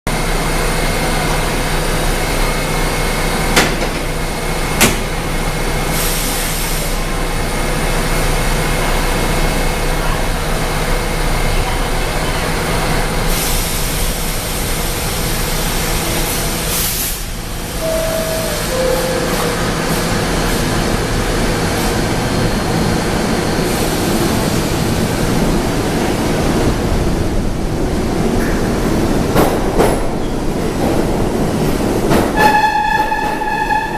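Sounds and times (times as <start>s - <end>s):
subway train equipment humming: 0.1s - 33.9s
two-note falling door chime: 17.8s - 19.7s.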